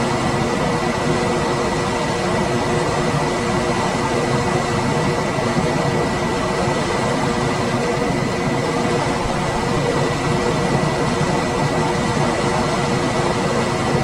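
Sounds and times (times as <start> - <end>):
air conditioner running: 0.0 - 14.0.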